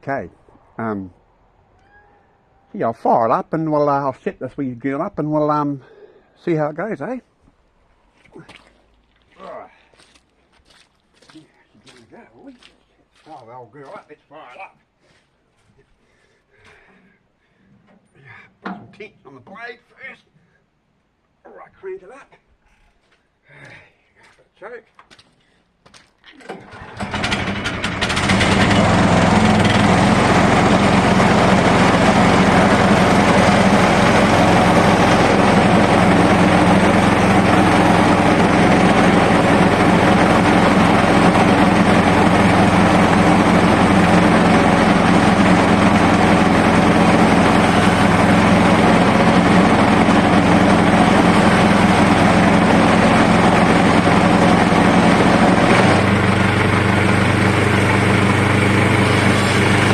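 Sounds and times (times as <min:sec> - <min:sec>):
petrol engine starting and running: 0:26.5 - 0:59.9.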